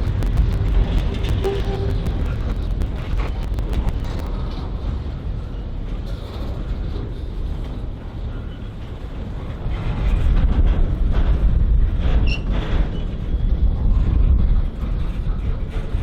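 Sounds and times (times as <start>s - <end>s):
vehicle low rumble: 0.0s - 9.0s
wind on microphone: 0.0s - 16.0s.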